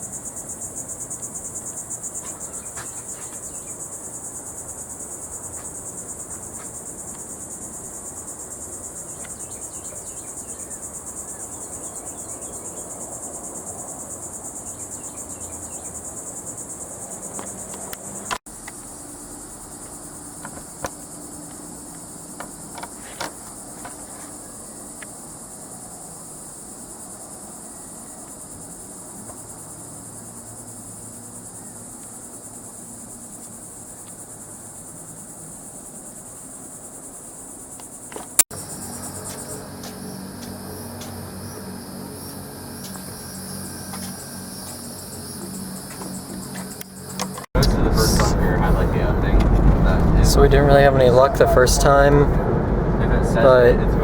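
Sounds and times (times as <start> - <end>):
insects chorus: 0.0 - 54.0.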